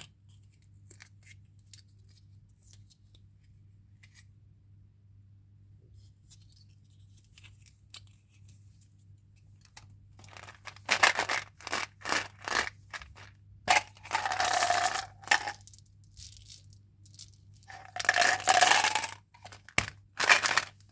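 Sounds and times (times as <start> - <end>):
plastic packaging crinkling: 10.2 - 20.9.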